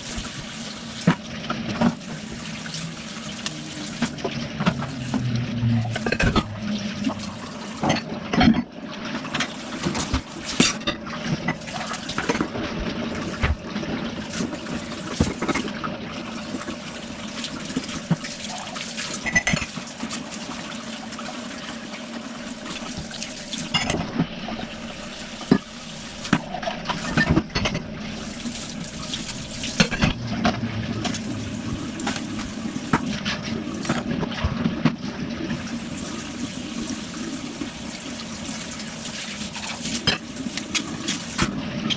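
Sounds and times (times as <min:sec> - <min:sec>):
water running into sink: 0:00.0 - 0:41.9
dishes clattering: 0:07.8 - 0:08.7, 0:19.2 - 0:19.8, 0:26.3 - 0:27.9.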